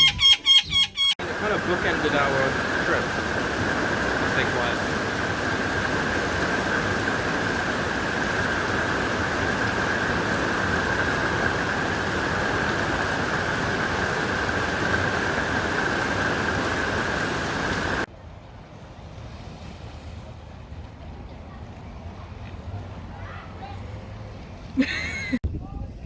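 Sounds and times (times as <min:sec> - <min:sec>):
steady rushing noise: 0:01.2 - 0:18.1.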